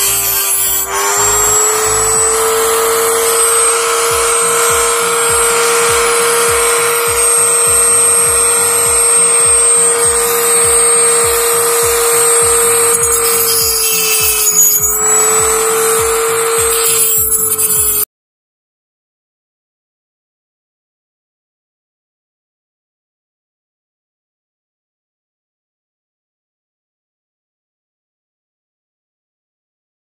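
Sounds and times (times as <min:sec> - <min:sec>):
background music with beat: 0:00.0 - 0:18.0
die grinder cutting metal: 0:00.0 - 0:18.1.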